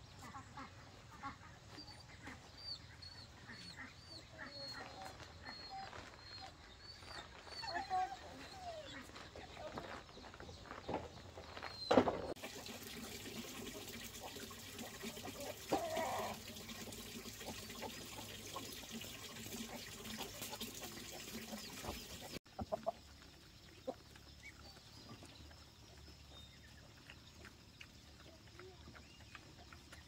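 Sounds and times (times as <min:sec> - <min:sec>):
chickens clucking: 0:00.1 - 0:12.4, 0:13.9 - 0:30.0
running water hiss: 0:12.3 - 0:22.4.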